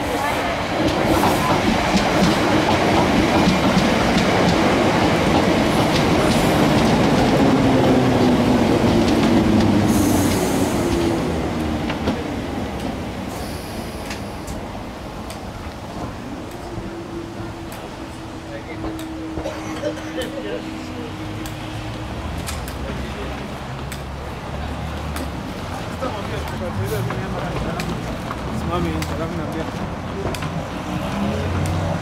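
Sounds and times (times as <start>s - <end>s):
electric train passing: 0.0s - 19.5s, 20.2s - 24.8s.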